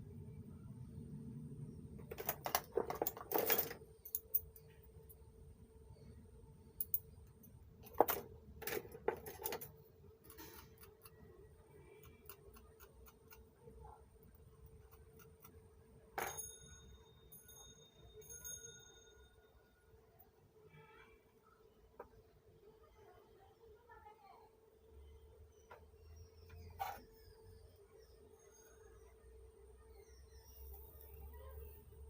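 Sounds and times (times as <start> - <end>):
faint steady hum: 0.0 - 32.0
small tools clicking and knocking: 2.0 - 4.7, 6.8 - 11.2
metallic clink: 16.2 - 19.3.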